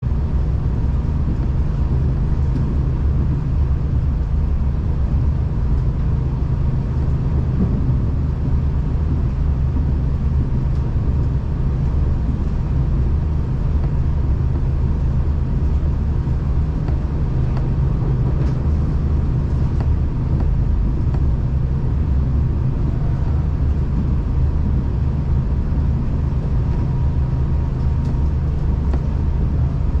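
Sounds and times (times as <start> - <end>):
faint steady whine: 0.0 - 30.0
train rumbling inside carriage: 0.0 - 30.0.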